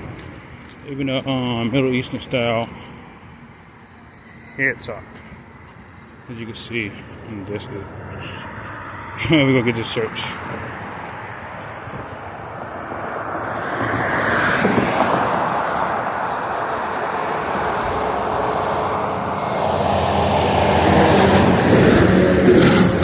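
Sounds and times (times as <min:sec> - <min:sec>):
vehicle passing by: 0:06.9 - 0:23.0.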